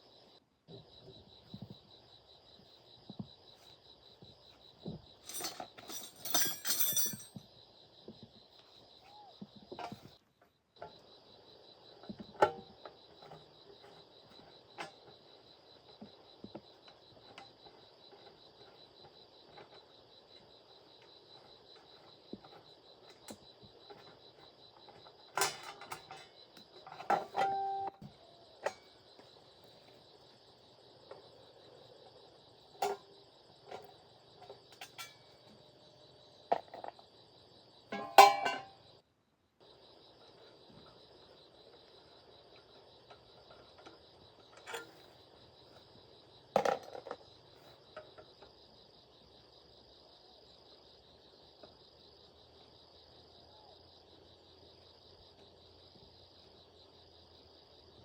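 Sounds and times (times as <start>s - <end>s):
insects chirring: 0.0s - 58.0s
sharp knocks and clinks: 4.8s - 7.5s, 26.9s - 28.9s, 37.9s - 38.8s.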